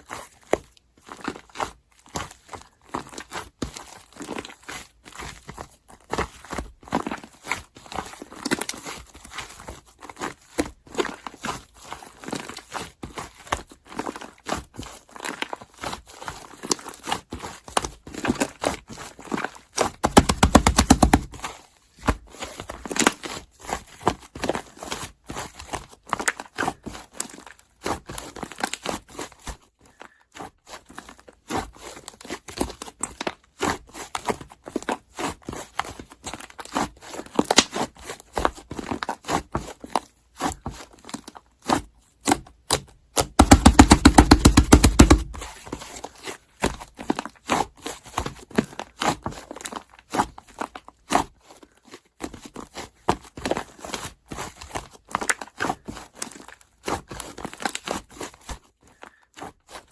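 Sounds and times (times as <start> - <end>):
slime squished by hand: 20.0 - 21.4, 43.2 - 45.5.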